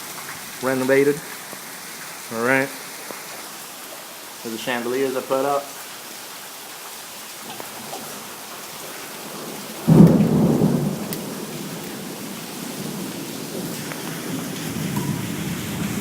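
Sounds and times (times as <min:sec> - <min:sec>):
steady rain falling: 0:00.0 - 0:16.0
thunder clap rumbling: 0:09.4 - 0:16.0.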